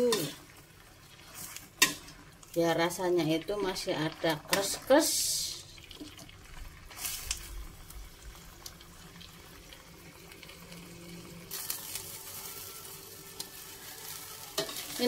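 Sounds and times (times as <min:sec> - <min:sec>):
metal spatula stirring in a wok: 0:00.0 - 0:02.4, 0:13.4 - 0:15.0
vegetables sizzling in a wok: 0:00.0 - 0:15.0.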